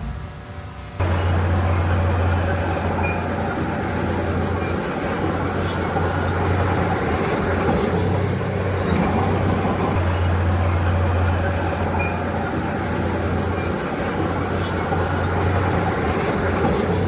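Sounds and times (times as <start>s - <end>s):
diesel engine humming: 0.0s - 17.0s.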